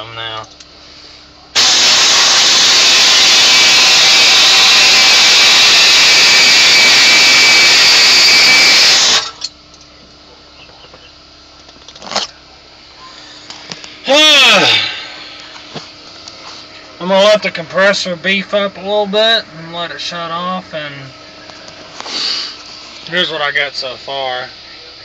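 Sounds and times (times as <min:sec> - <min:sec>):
air-powered cutting tool running: 0:01.6 - 0:09.4, 0:13.3 - 0:15.8, 0:21.9 - 0:23.1.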